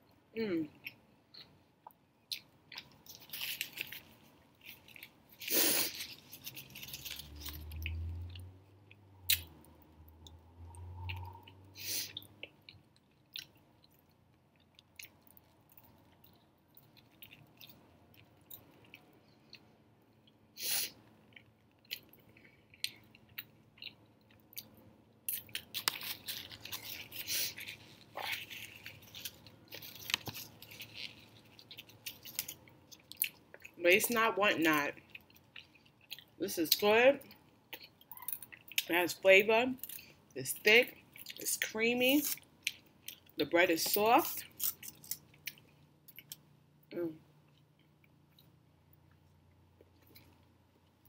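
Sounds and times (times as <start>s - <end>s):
biting and chewing bread: 2.3s - 10.4s, 21.2s - 33.7s.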